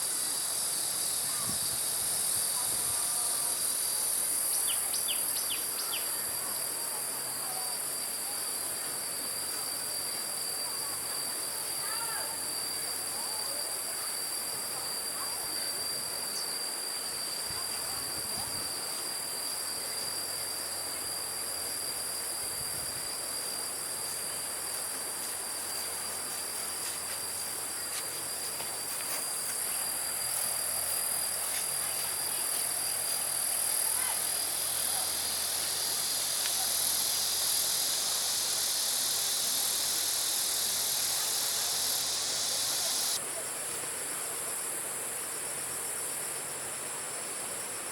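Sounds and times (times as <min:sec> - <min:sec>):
thin steady tone: 0:00.0 - 0:43.6
insects trilling: 0:00.0 - 0:47.9
loud insect buzz: 0:16.2 - 0:43.2.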